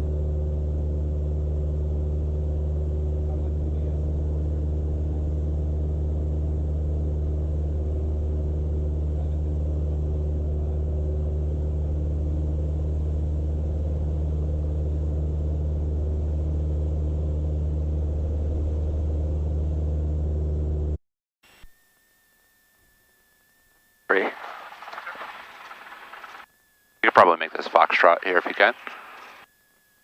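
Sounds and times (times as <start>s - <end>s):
propeller plane engine droning: 0.0s - 21.0s, 24.1s - 26.4s, 27.0s - 29.4s.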